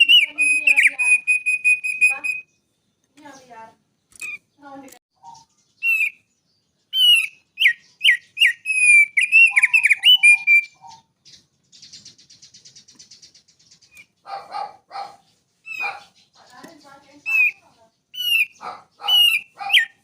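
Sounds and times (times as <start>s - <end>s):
songbird whistling and trilling: 0.0s - 3.5s, 4.1s - 4.6s, 5.2s - 20.0s.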